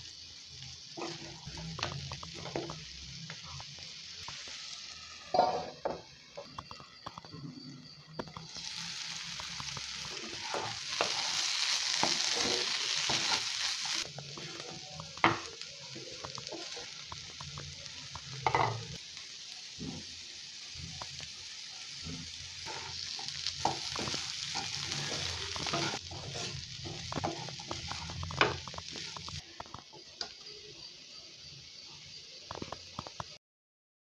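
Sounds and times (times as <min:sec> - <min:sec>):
food sizzling in a pan: 0:00.0 - 0:33.4
spatula stirring: 0:08.2 - 0:18.8, 0:22.0 - 0:30.0.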